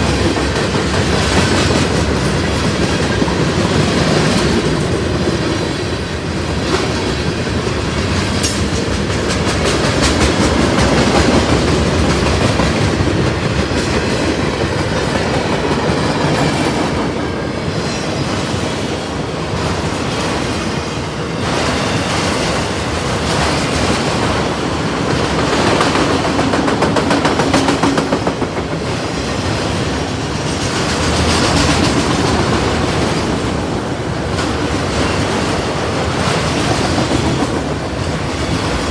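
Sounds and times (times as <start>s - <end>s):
train cars rumbling past: 0.0s - 38.9s
wheels clacking over rail joints: 21.4s - 38.9s.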